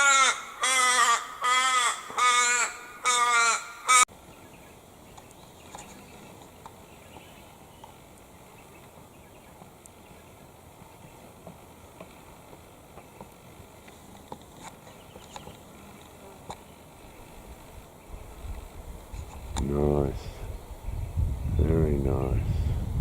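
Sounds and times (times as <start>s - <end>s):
large bird cawing: 0.0s - 4.1s.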